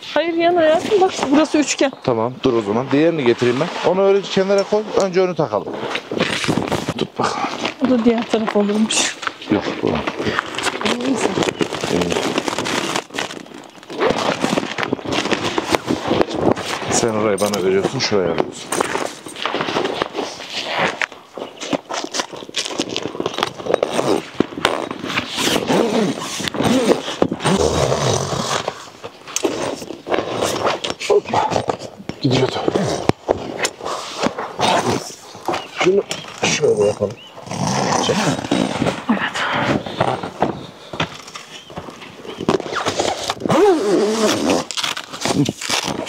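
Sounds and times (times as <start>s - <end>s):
tent fabric rustling and knocking: 3.5s - 27.6s.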